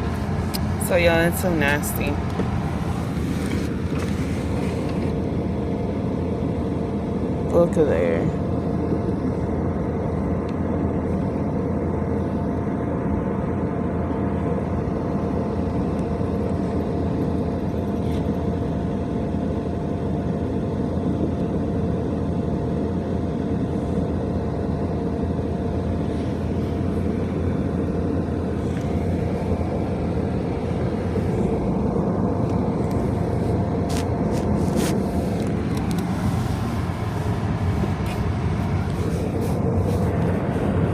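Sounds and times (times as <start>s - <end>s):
faint constant hum: 0.0s - 40.9s
vehicle low rumble: 0.0s - 40.9s.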